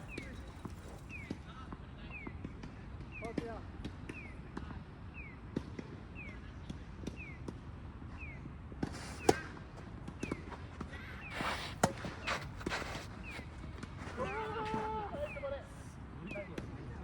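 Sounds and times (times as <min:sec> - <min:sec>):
tennis balls struck and bouncing: 0:00.0 - 0:01.4, 0:08.8 - 0:15.0.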